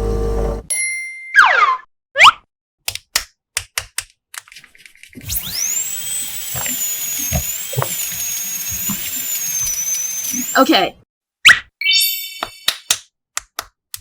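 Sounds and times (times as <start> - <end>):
toy drill whirring: 5.2 - 10.9.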